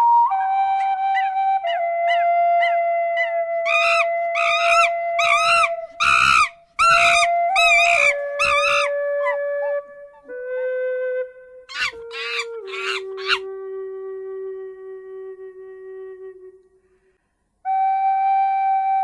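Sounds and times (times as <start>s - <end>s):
gentle flute music: 0.0s - 19.0s
animal harsh calls: 3.7s - 8.9s, 11.7s - 13.4s.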